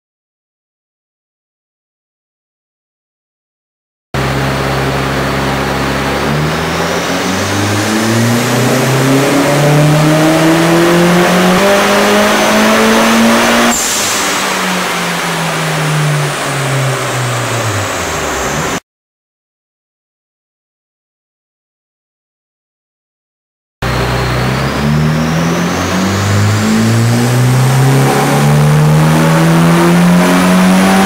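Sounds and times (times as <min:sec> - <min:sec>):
turbocharged car engine revving: 0:04.2 - 0:18.8, 0:23.8 - 0:31.0.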